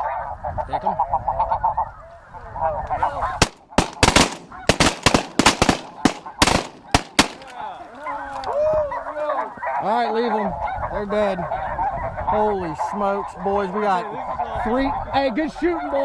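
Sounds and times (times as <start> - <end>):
snow geese calling: 1.0 - 12.3
shotguns firing a volley: 3.4 - 7.7.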